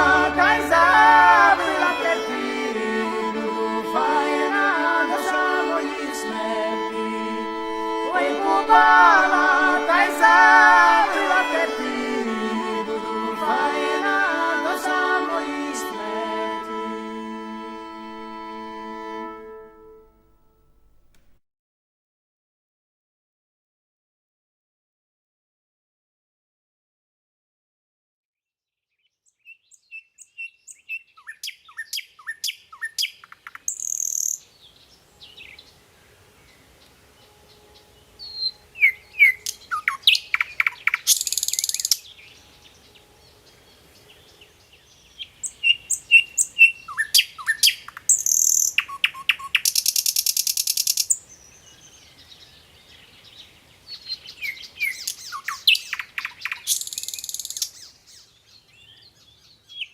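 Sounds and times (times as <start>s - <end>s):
nightingale singing: 29.0s - 59.9s.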